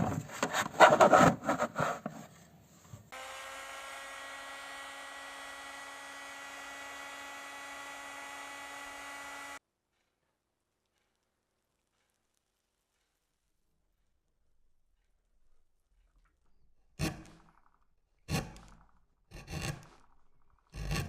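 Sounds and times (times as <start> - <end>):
rough scraping strokes: 0.0 - 2.4
small electric motor humming: 3.1 - 9.6.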